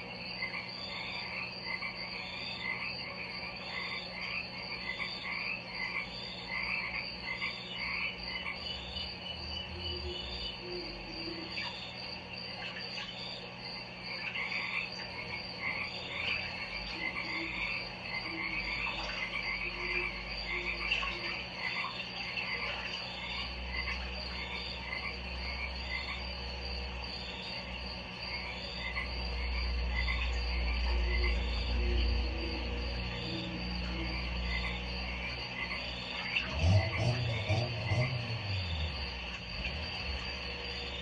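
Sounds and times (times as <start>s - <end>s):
frogs calling: 0.0s - 41.0s
high insect-like trill: 15.6s - 41.0s.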